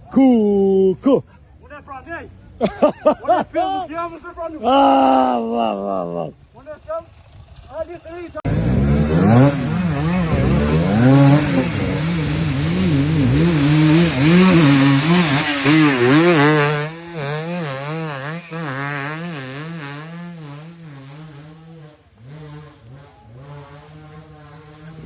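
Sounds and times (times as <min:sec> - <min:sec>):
motocross bike engine revving: 0:06.8 - 0:25.0.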